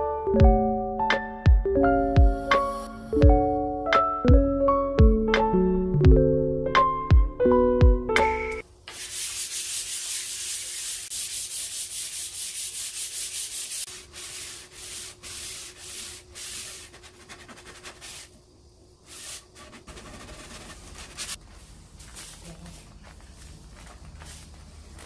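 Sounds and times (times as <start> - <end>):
sandpaper on wood: 8.9 - 18.3, 19.1 - 21.4.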